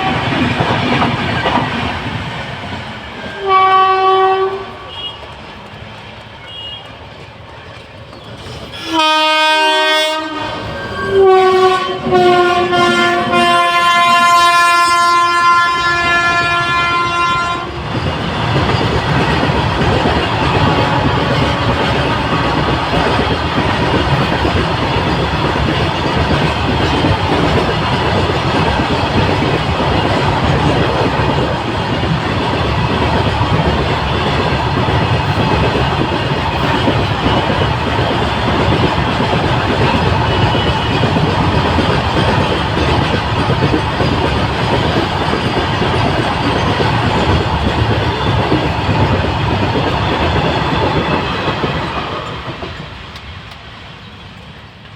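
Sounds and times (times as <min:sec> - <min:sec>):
train wheel and rail rush: 0:00.0 - 0:54.9
locomotive horn blasts: 0:03.3 - 0:05.2, 0:08.8 - 0:17.8.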